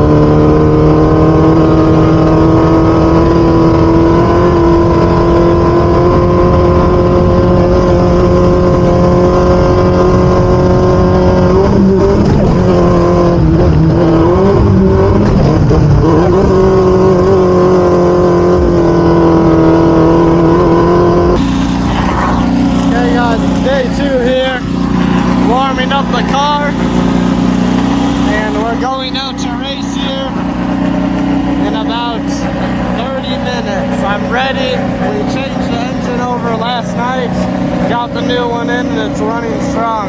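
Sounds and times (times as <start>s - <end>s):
race vehicle engine revving high: 0.0s - 40.0s.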